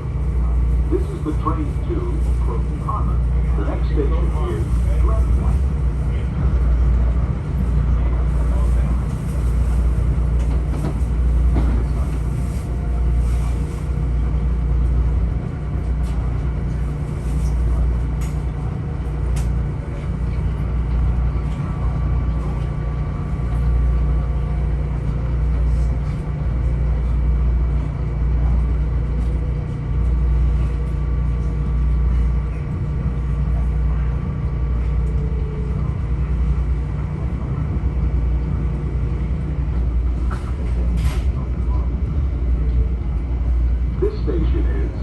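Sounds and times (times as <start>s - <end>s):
train rumble inside car: 0.0s - 45.0s.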